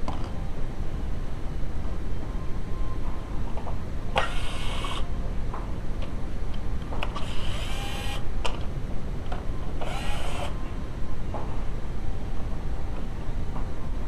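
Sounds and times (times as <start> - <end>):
fan bearing squealing: 4.1 - 5.2.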